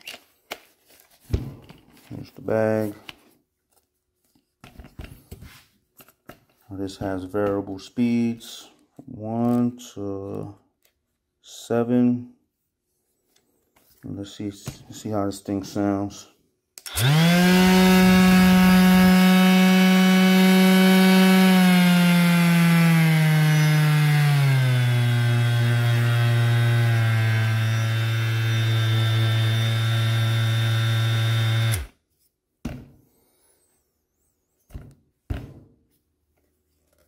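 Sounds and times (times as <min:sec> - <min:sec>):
sander motor whine: 0:16.9 - 0:31.9.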